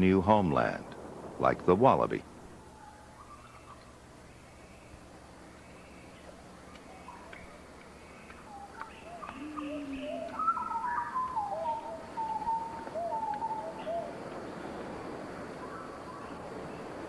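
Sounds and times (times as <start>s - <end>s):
birds whistling and warbling: 2.6s - 14.8s, 15.5s - 17.0s
low cooing note: 9.1s - 14.1s.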